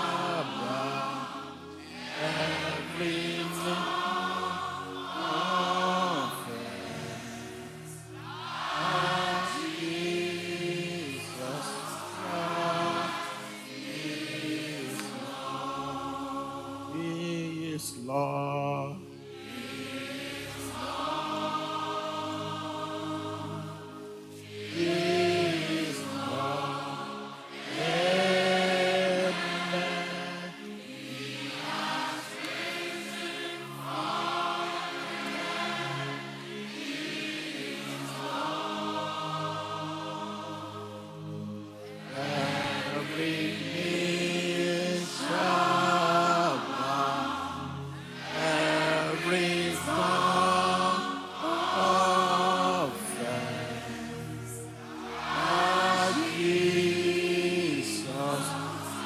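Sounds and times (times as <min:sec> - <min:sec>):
voices singing worship chorus: 0:00.0 - 0:59.0.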